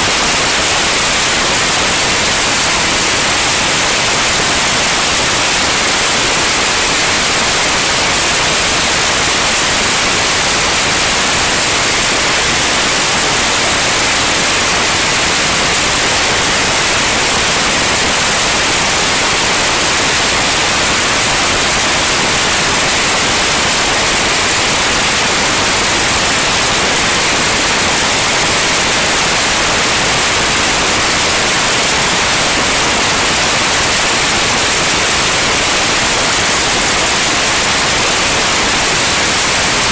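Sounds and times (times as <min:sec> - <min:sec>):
steady loud hiss: 0:00.0 - 0:39.9.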